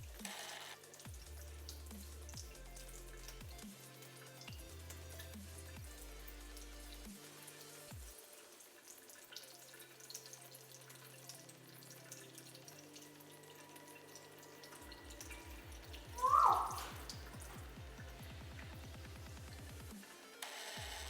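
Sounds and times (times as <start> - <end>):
electronic music: 15.3 - 17.7.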